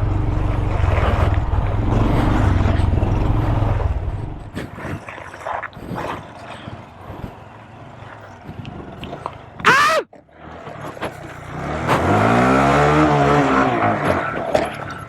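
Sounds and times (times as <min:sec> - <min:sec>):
mini bike engine running: 0:00.0 - 0:04.7.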